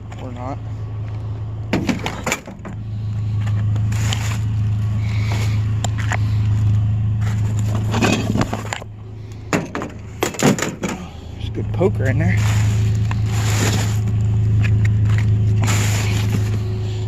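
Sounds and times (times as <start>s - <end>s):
vehicle engine idling: 0.0s - 17.0s
knocks and rattles: 1.7s - 2.8s, 9.5s - 11.1s.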